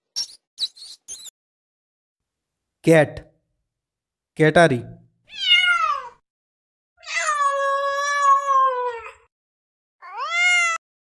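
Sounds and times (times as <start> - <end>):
cat meowing: 5.3 - 6.2, 7.0 - 9.3, 10.0 - 10.8.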